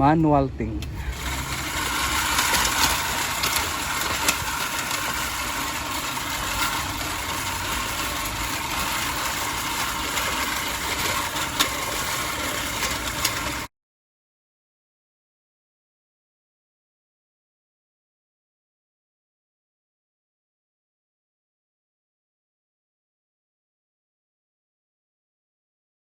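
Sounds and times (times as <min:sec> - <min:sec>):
reel lawnmower whirring: 0:00.8 - 0:13.7.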